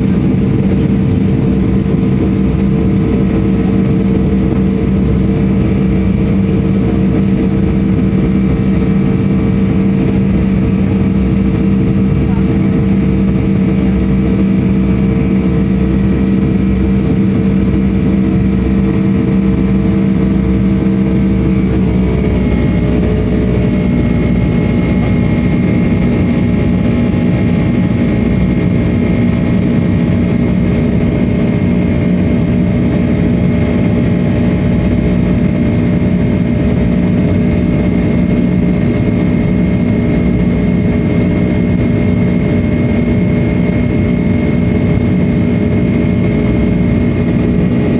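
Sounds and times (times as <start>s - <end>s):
jet engines hum and whine: 0.0s - 47.9s.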